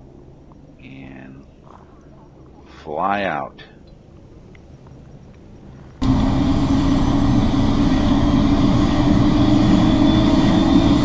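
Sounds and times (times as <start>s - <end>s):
helicopter turbine and rotor: 5.4s - 11.0s.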